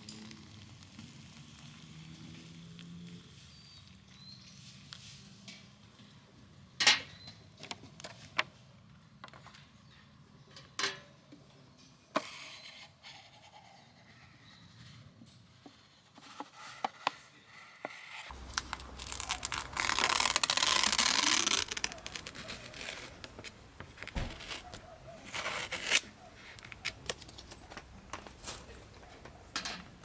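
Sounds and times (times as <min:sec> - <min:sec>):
handling rustles: 0:18.3 - 0:30.0
tearing and crinkling: 0:18.3 - 0:30.0.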